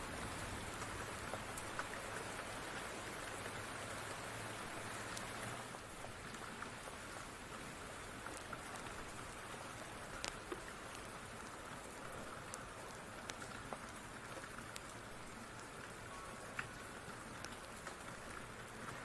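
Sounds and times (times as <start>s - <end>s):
rain hiss: 0.0s - 19.0s
sharp ticks and pops: 8.2s - 19.0s.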